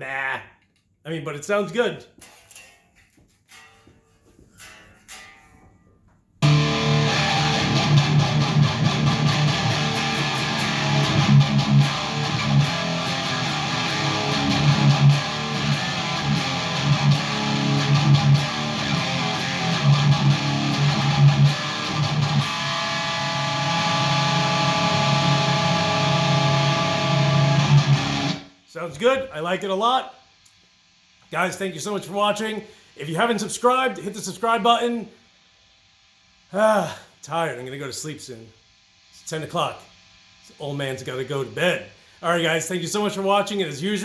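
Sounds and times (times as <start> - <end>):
distorted electric guitar: 6.4 - 29.1.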